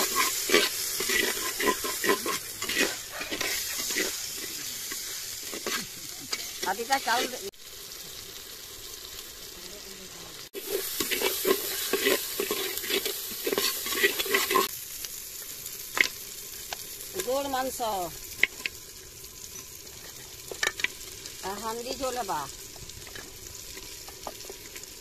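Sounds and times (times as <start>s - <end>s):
spatula scraping metal pot: 0.0s - 7.4s, 10.6s - 14.7s
masala sizzling in hot oil: 0.0s - 25.0s.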